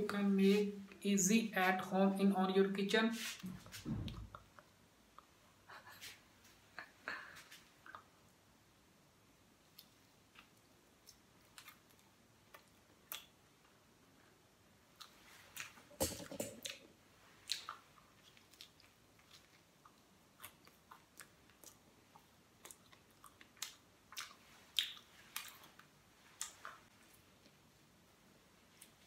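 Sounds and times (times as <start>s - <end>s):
person chewing food: 16.6s - 27.7s.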